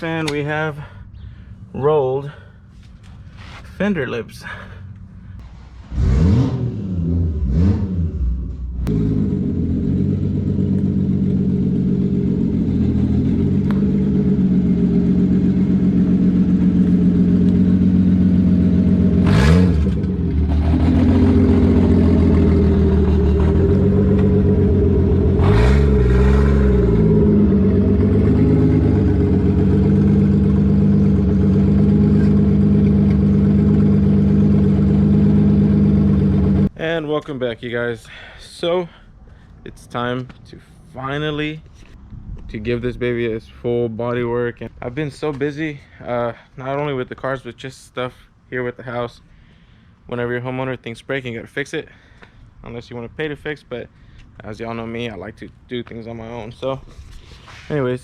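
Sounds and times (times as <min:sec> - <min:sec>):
engine revving: 0:05.5 - 0:36.7
car engine idling: 0:08.6 - 0:36.7.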